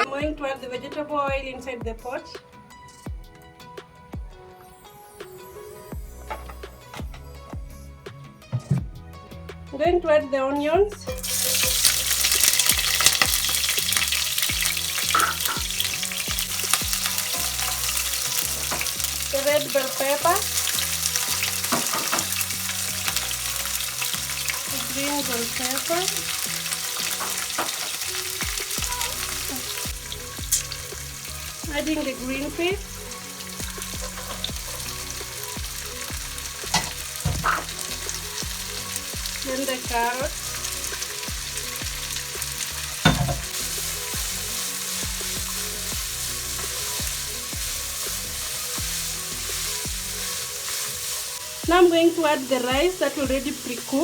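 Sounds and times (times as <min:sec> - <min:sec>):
onions sizzling in hot oil: 0:11.1 - 0:54.0
utensil knocking against pot: 0:43.0 - 0:43.5.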